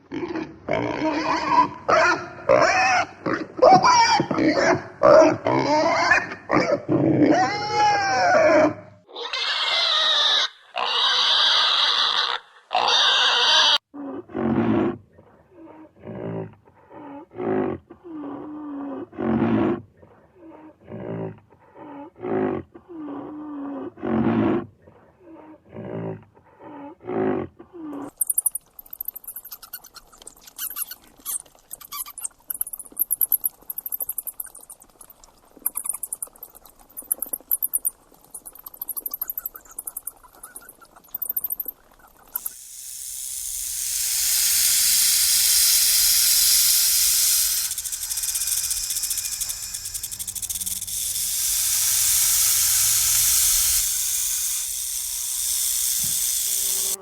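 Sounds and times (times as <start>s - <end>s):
high-pitched clicking chatter: 28.0s - 57.0s.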